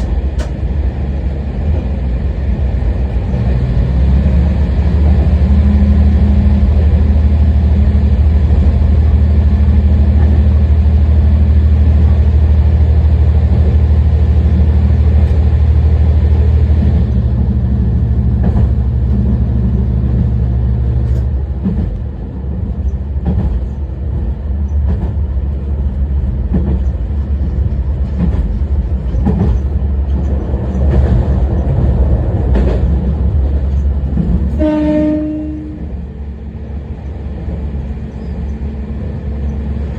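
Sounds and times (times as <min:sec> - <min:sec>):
diesel railcar engine drone: 0:00.0 - 0:39.9
train horn blast: 0:34.5 - 0:36.0.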